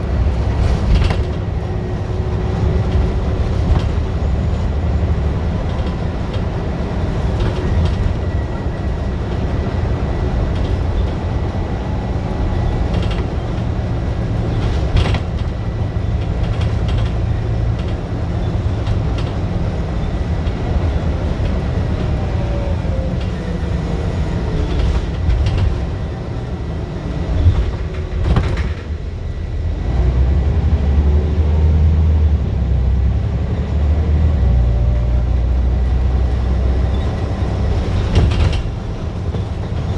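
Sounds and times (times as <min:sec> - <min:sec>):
bus engine droning under load: 0:00.0 - 0:39.9
knocks and rattles: 0:12.5 - 0:22.1, 0:37.0 - 0:39.9.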